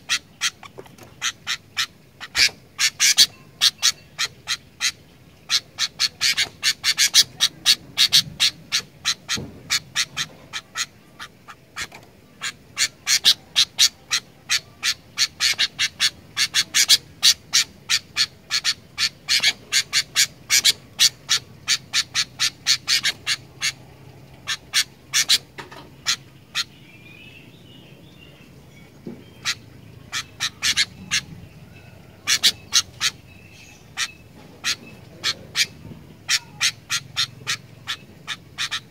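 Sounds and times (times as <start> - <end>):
soft bird twittering: 0.0 - 38.9.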